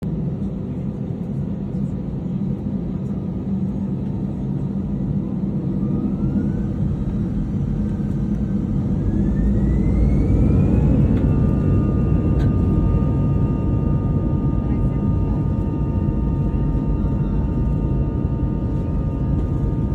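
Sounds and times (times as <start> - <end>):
jet engines rumbling and whining: 0.1 - 19.9.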